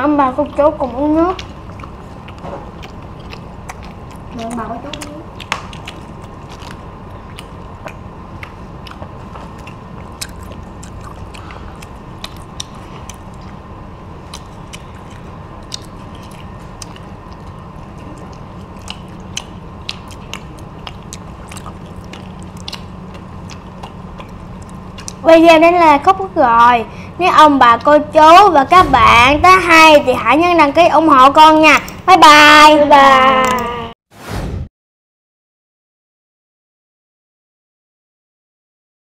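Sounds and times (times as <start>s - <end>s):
steady background hum: 0.0s - 34.0s
crunchy chewing: 0.8s - 26.2s.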